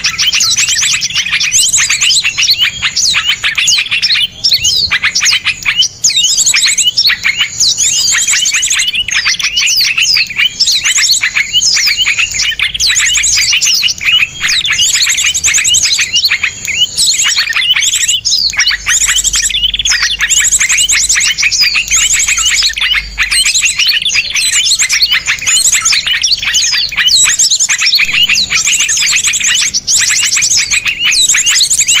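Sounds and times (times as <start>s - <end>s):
songbirds chirping and trilling: 0.0s - 32.0s.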